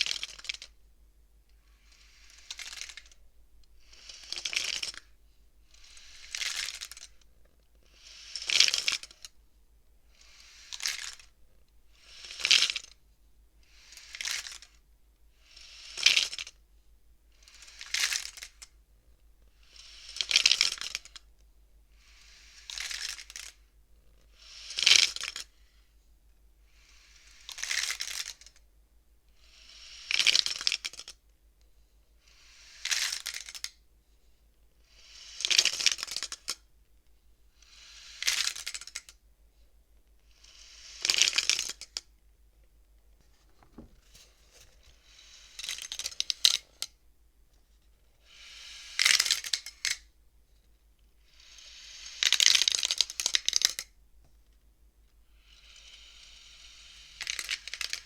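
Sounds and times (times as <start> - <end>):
wooden abacus beads sliding: 0.0 - 0.8, 1.7 - 3.2, 3.9 - 7.3, 7.9 - 9.3, 10.1 - 11.3, 12.0 - 13.0, 13.7 - 14.8, 15.4 - 16.6, 17.4 - 18.7, 19.6 - 21.2, 22.1 - 23.6, 24.3 - 25.7, 26.8 - 28.6, 29.5 - 31.2, 32.2 - 33.8, 34.9 - 36.6, 37.6 - 39.2, 40.3 - 42.1, 43.1 - 47.0, 48.2 - 50.1, 51.3 - 53.9, 55.4 - 58.0.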